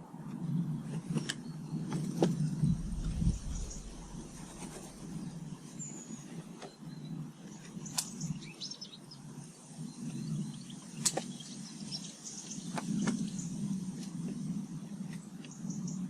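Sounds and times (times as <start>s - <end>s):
low steady rumble: 0.4s - 8.5s
small birds chirping: 0.4s - 16.0s.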